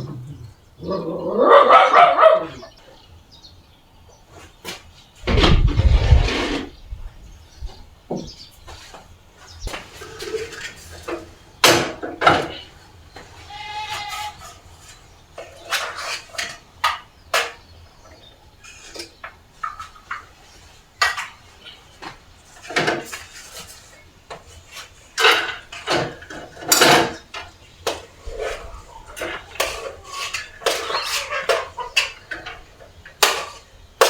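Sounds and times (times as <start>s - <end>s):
dishes and cutlery clinking: 9.7s - 12.8s, 13.5s - 17.7s, 18.6s - 33.8s
animal bleating: 13.4s - 14.6s.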